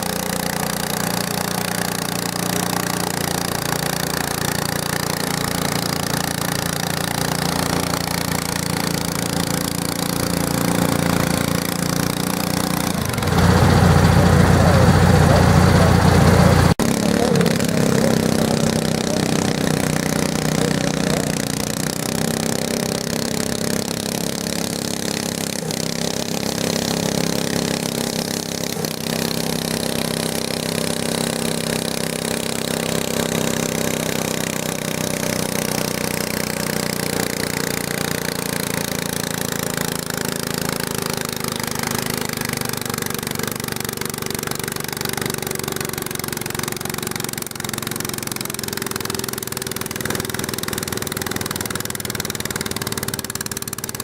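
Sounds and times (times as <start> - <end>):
garden tractor engine running: 0.0 - 54.0.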